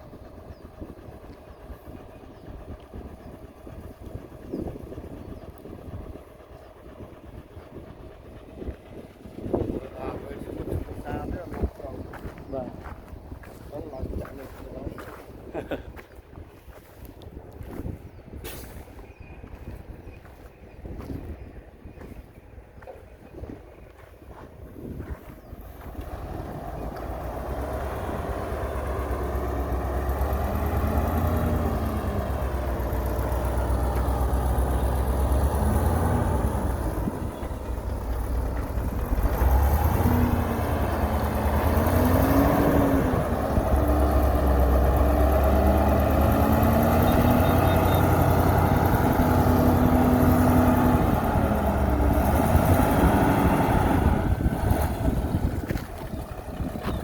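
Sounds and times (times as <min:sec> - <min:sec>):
heavy diesel engine revving: 0:24.4 - 0:57.0.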